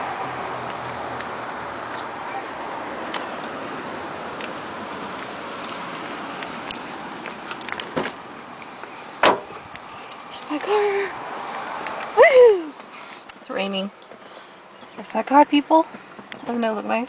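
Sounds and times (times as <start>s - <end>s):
steady rain falling: 2.5s - 14.8s.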